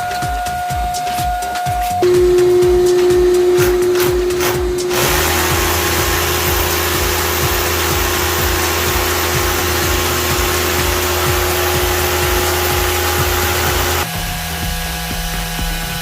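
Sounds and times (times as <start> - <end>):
background music with steady beat: 0.0 - 16.0
whirring motor-driven machine: 2.0 - 14.2.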